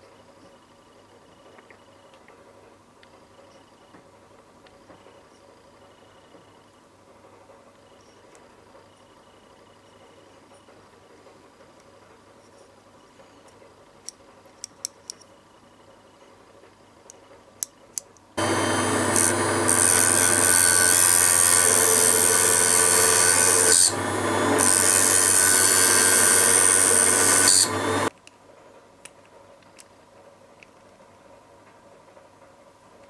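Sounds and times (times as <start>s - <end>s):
small power tool running: 18.4s - 28.1s.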